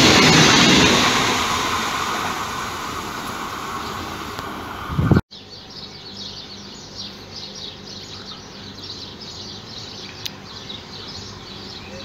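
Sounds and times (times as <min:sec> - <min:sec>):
train noise burst: 0:00.0 - 0:05.2
small birds chirping: 0:05.3 - 0:12.0.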